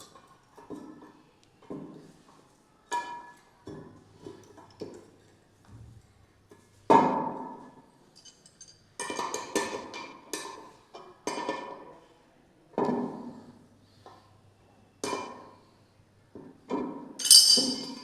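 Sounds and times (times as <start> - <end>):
hard objects knocking and clinking: 17.2 - 18.0.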